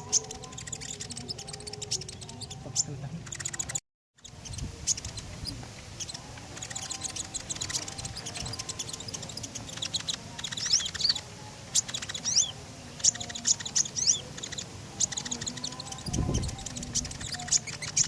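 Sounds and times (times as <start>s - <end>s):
songbird chattering and whistling: 0.0s - 18.0s.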